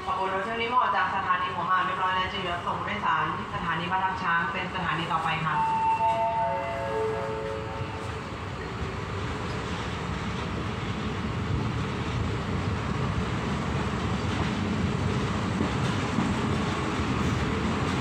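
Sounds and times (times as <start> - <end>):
train wheels rumbling: 5.6 - 18.0.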